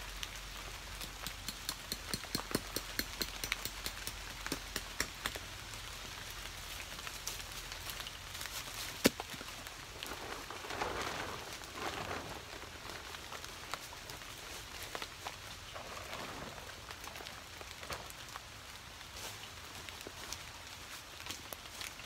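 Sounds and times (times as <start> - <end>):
rain falling: 0.0 - 22.0
rustling: 6.6 - 22.0.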